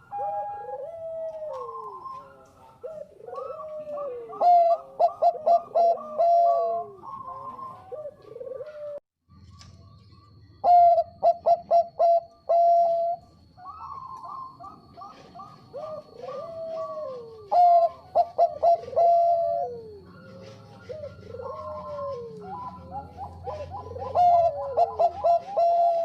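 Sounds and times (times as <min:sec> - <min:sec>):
dove cooing: 0:00.0 - 0:09.0, 0:10.6 - 0:26.0.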